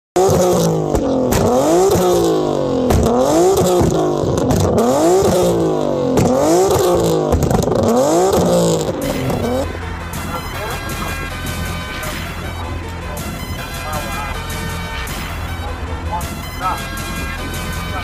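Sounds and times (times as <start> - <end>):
exhaust pops: 0.2 - 14.4
car engine revving: 0.2 - 18.0.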